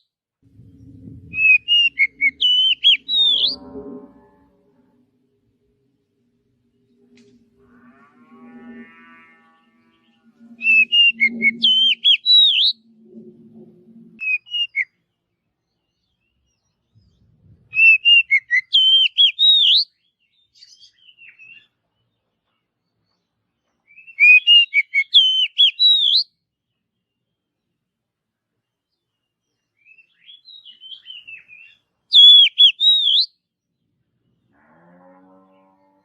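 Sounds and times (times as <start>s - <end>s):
low steady hum: 0.4s - 11.0s, 12.8s - 14.2s
bird singing whistled phrase: 1.3s - 3.7s, 10.6s - 12.8s, 14.2s - 14.9s, 17.7s - 19.9s, 23.9s - 26.3s, 29.8s - 33.3s.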